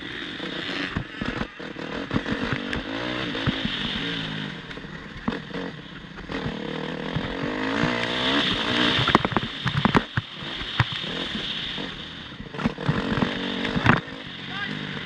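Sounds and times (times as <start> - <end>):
motocross bike engine revving: 0.0 - 15.0
sharp clicks and knocks: 6.2 - 11.2, 12.4 - 14.1.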